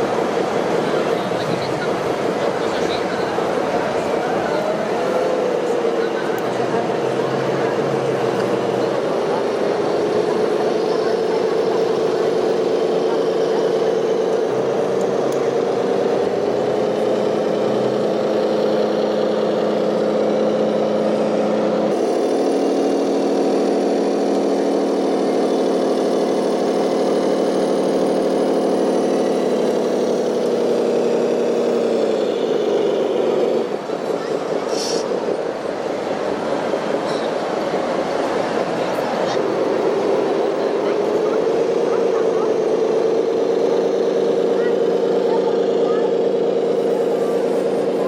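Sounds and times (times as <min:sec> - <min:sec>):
small electric motor whining: 0:01.8 - 0:35.7.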